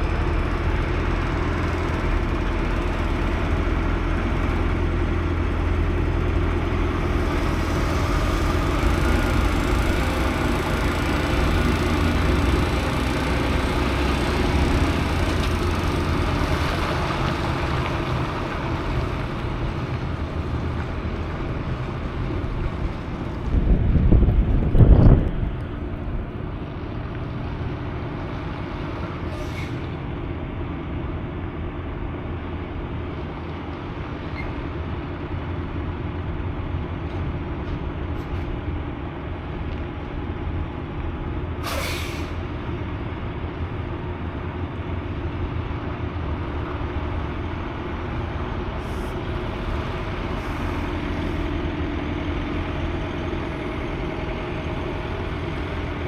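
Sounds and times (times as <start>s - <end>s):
diesel truck engine running: 0.0s - 56.0s
air brake hiss: 29.3s - 29.9s, 41.6s - 42.4s
puffs of air: 41.6s - 42.4s.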